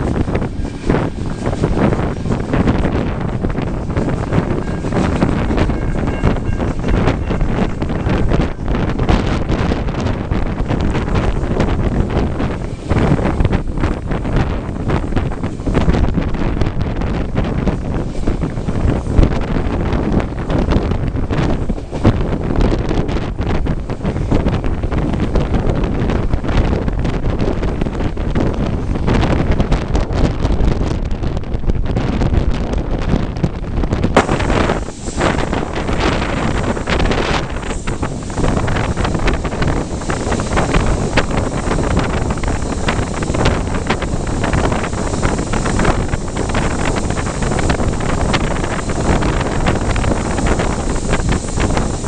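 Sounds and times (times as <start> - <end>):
moving train rumble: 0.0 - 52.0
wind buffeting microphone: 0.0 - 52.0.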